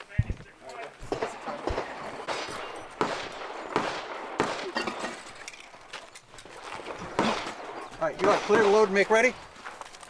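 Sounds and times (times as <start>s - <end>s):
people talking: 0.0s - 2.3s, 7.8s - 9.4s
pistol gunshots echoing: 0.1s - 9.8s.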